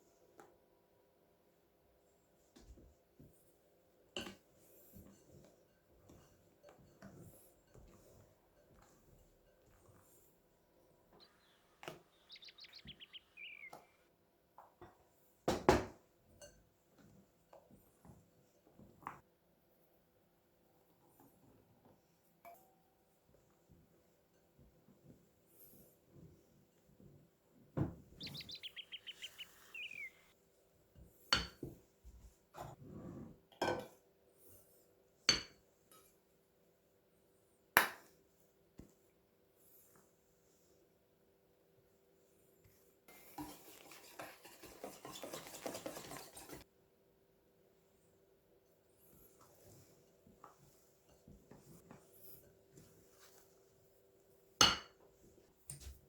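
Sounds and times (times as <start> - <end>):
bird chirping: 11.2 - 14.0, 28.1 - 30.3.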